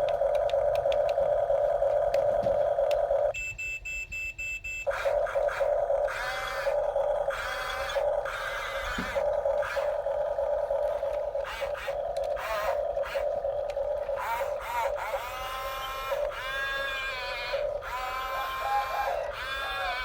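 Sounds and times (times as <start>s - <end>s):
toy bulldozer motor whining: 0.0s - 3.3s, 4.8s - 20.0s
wavering high sounds: 4.9s - 20.0s.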